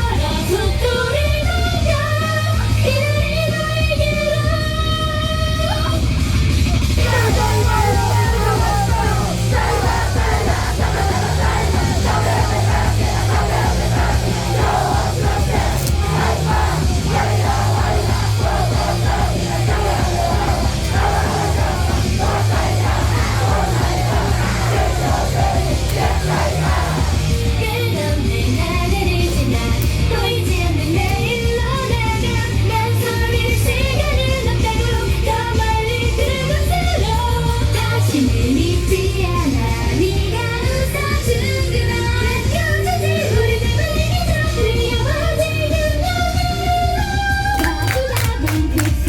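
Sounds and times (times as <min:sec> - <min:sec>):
pounding drums: 0:07.0 - 0:27.2
rock band playing: 0:07.0 - 0:27.5.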